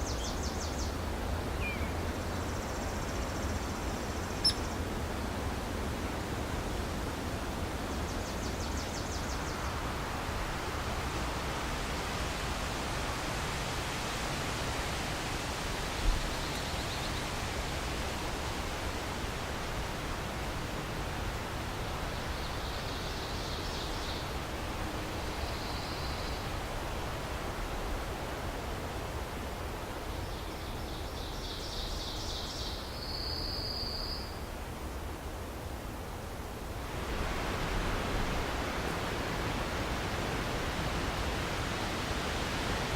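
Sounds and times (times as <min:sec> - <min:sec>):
songbird singing buzzy trill: 0:00.0 - 0:05.4
wind: 0:00.0 - 0:42.9.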